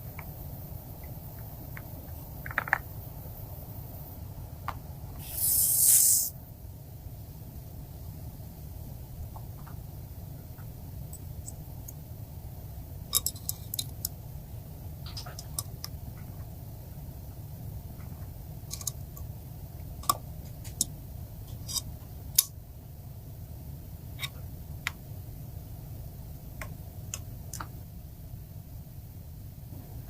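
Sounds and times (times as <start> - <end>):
steady low hum: 0.0 - 30.0
small hard parts clicking: 1.0 - 2.9, 13.1 - 14.2, 18.7 - 19.3.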